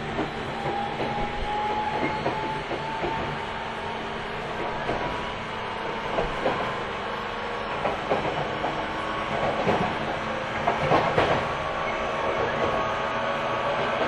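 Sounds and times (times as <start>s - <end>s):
train rumbling: 0.0s - 14.0s
wheels clacking over rail joints: 7.7s - 12.8s.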